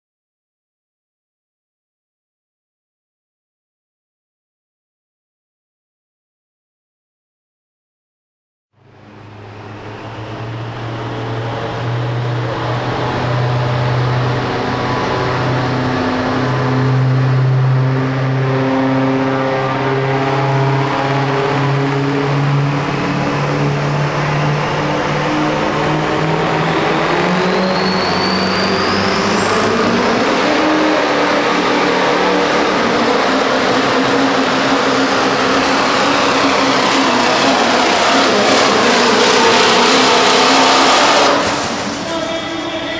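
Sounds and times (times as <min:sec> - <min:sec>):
diesel truck engine under load: 0:09.0 - 0:42.9
turbocharger whistle: 0:09.8 - 0:42.9.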